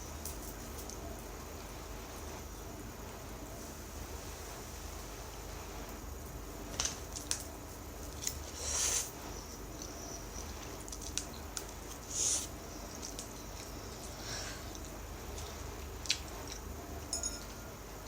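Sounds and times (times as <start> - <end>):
light clicks and smacks: 10.6 - 12.1, 12.9 - 14.1.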